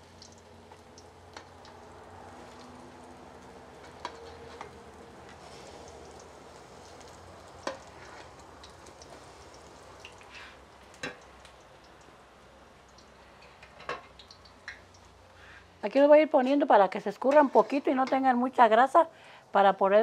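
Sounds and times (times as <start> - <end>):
food frying in hot oil: 0.0 - 15.9
metal spatula clicking on pan: 7.6 - 7.9.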